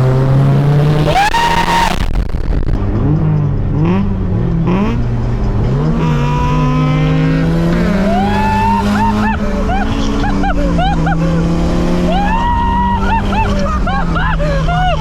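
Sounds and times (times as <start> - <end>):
car engine revving: 0.0 - 15.0
turbo whine: 0.8 - 2.9.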